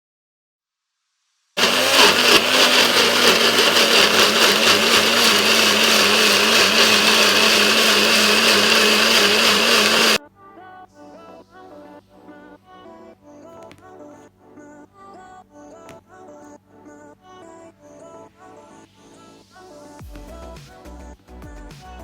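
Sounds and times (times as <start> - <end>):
electric blender running: 1.6 - 10.2.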